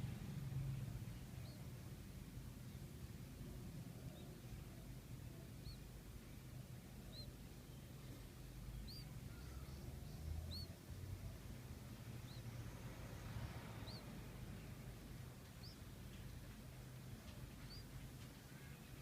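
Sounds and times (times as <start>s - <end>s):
faint low hum: 0.0s - 19.0s
high bird chirps: 8.8s - 9.8s, 17.6s - 17.9s.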